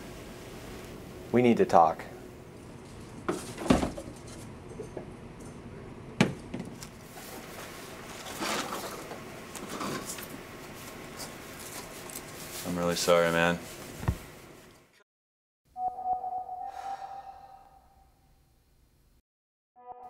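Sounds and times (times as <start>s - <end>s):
items thudding into a box: 3.3s - 4.2s.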